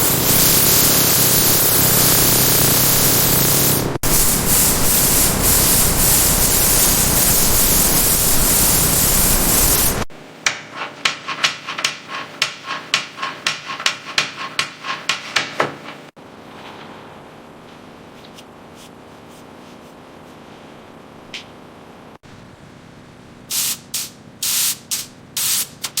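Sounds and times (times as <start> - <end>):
loud steady hiss: 0.0 - 10.1, 23.4 - 26.0
quick rubbing strokes: 0.0 - 10.1, 10.7 - 15.4.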